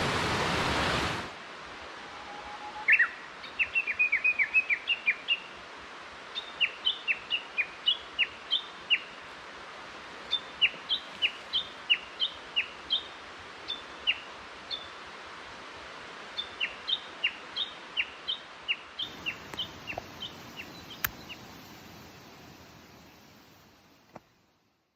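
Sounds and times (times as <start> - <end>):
steady background hiss: 0.0 - 24.9
bird chirping: 2.1 - 5.3, 19.0 - 23.3
click: 21.0 - 21.2.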